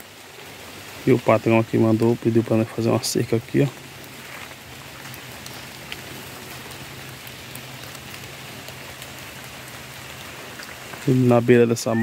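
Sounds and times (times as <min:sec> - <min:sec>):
light rain on leaves: 0:00.0 - 0:12.0.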